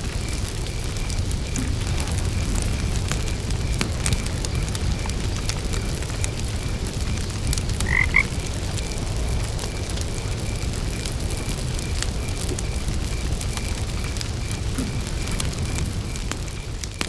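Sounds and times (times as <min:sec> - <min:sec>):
campfire crackling: 0:00.0 - 0:17.0
cricket chirping: 0:00.0 - 0:17.0
frog calling: 0:03.2 - 0:09.0.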